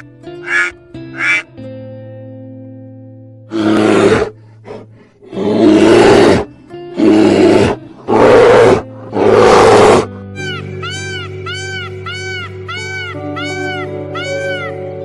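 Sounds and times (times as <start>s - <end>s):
background music: 0.0s - 15.0s
loud animal roars: 3.5s - 4.4s, 5.2s - 10.1s.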